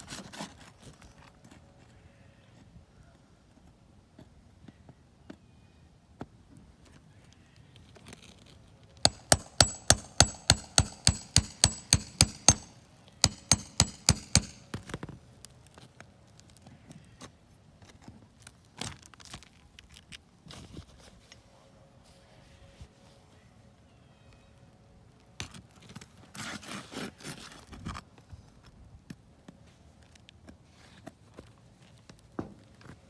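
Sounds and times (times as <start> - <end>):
hammer blows on metal: 9.1 - 14.8.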